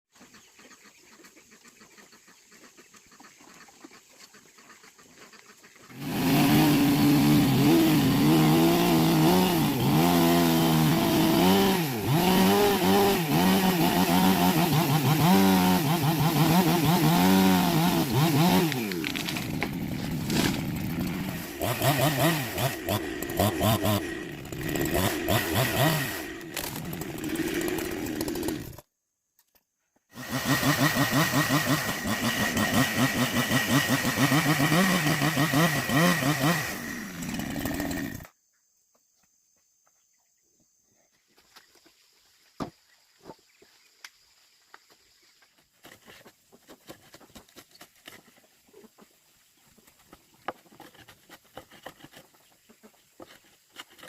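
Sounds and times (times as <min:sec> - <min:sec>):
chainsaw revving: 0:05.9 - 0:28.8, 0:30.1 - 0:38.3.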